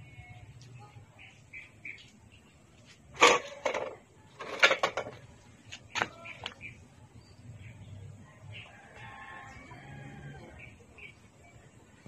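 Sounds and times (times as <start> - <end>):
small birds chirping: 0.0 - 3.1, 5.2 - 12.0.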